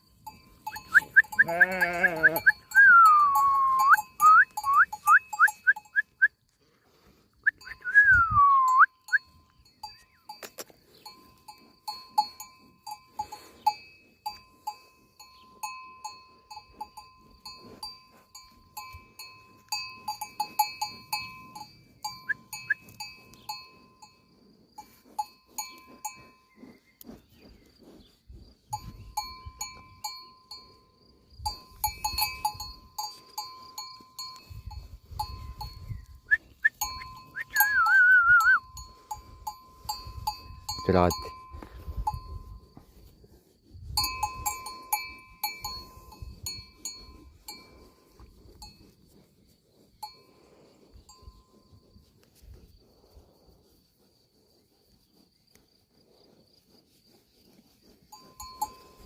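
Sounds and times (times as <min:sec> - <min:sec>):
livestock bells clanking: 0:00.0 - 0:06.2, 0:09.0 - 0:26.7, 0:28.7 - 0:43.1, 0:43.8 - 0:49.0, 0:50.0 - 0:51.7, 0:58.1 - 0:59.0.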